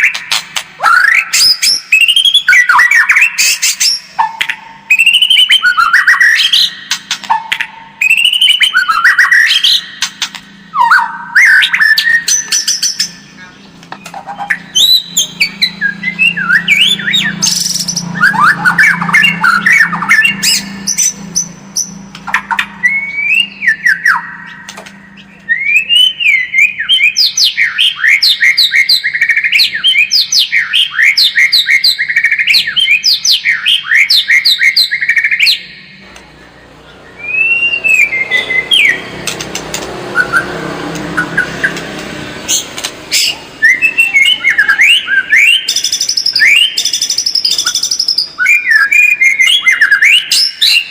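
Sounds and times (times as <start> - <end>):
songbird whistling: 0.0 - 36.0, 36.6 - 39.5, 40.1 - 50.9.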